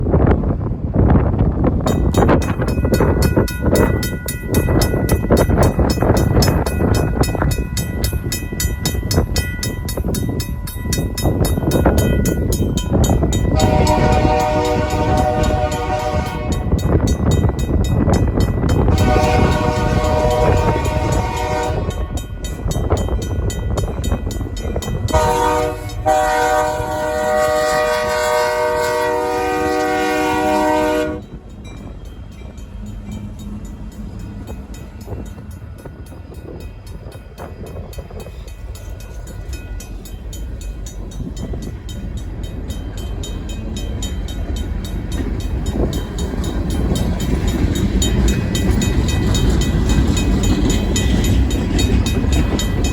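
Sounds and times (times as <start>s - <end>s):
locomotive engine and wheels rumbling: 0.0s - 52.9s
crossing bell dinging rapidly: 1.7s - 52.9s
locomotive horn blasts: 13.5s - 16.8s, 18.9s - 22.2s, 25.1s - 31.4s.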